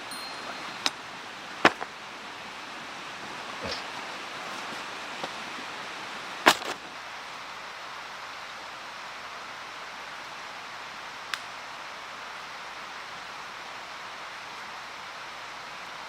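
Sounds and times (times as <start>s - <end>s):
stream rushing: 0.0s - 16.0s
loud sharp crack: 6.4s - 6.8s.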